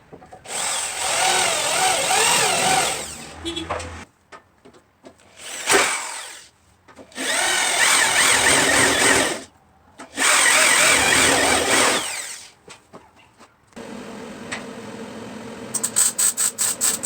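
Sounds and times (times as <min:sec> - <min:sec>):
handheld power tool running: 0:00.5 - 0:04.0, 0:07.2 - 0:09.4, 0:10.2 - 0:12.4.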